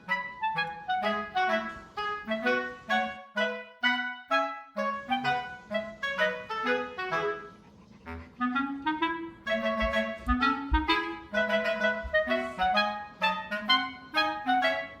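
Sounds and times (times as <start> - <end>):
bouncy woodwind melody: 0.0 - 15.0
low thumps: 9.5 - 12.7.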